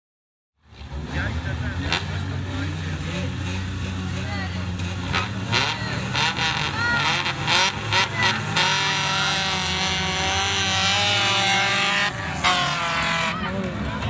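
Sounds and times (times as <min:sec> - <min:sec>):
car engines revving: 0:00.6 - 0:14.0.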